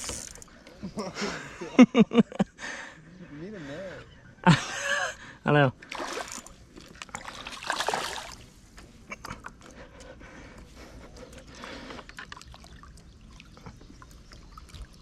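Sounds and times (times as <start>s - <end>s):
water trickling and splashing: 5.8s - 8.5s, 12.0s - 15.0s.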